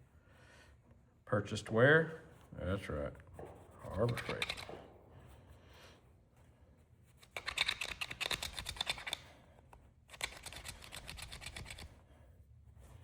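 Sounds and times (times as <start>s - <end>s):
screwdriver scratching and clicking: 3.9s - 4.8s, 7.2s - 9.3s, 10.1s - 11.9s.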